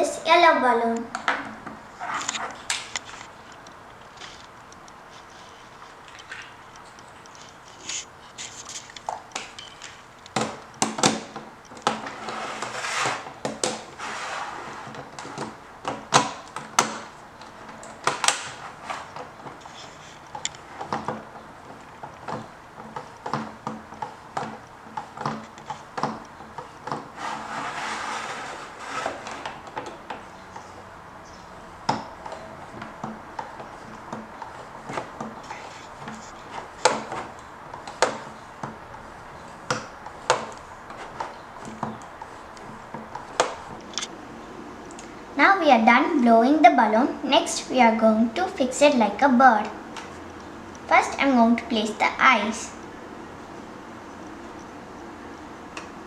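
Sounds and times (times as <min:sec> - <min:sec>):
knocks and clicks: 0:01.0 - 0:12.7, 0:14.6 - 0:44.2.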